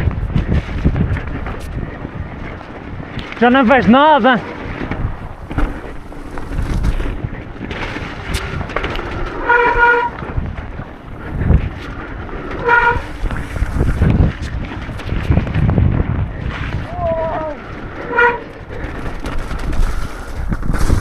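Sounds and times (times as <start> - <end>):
bike tyres rumbling over rough ground: 0.0 - 21.0
heavy thumps from bumps: 4.7 - 11.7.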